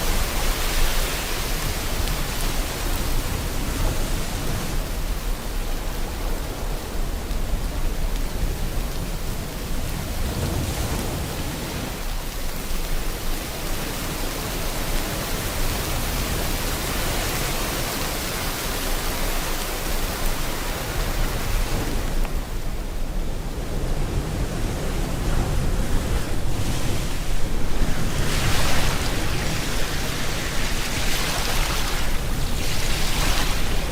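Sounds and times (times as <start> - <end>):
heavy rain hissing: 0.0 - 33.9
ocean surf rumbling: 0.0 - 33.9.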